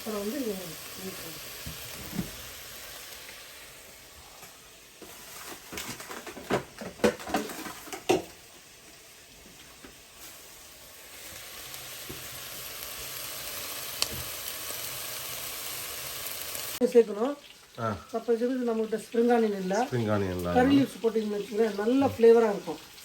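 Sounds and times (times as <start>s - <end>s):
chicken sizzling in a pan: 0.0s - 23.0s
utensil scraping a pan: 5.0s - 8.2s.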